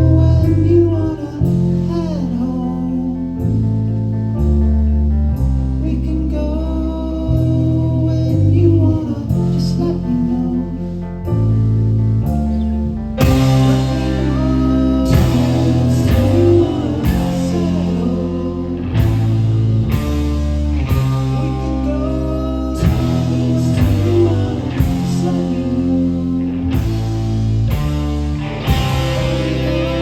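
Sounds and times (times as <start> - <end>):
bass guitar: 0.0 - 30.0
distorted electric guitars: 12.3 - 30.0
drum hits: 13.2 - 14.2.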